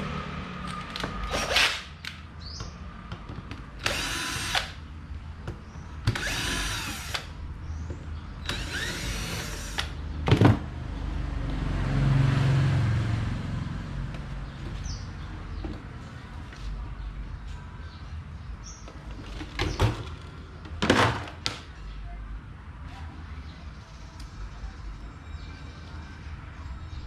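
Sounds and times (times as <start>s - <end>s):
power drill running: 3.8s - 4.8s, 6.1s - 7.3s, 8.5s - 10.0s.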